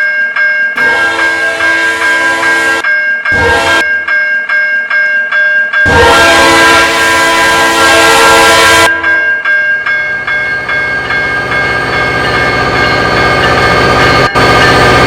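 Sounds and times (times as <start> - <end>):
railroad crossing bells ringing: 0.0 - 15.0
train horn blast: 0.8 - 2.8, 3.4 - 3.9, 5.9 - 9.2
passing train rumble: 5.9 - 15.0.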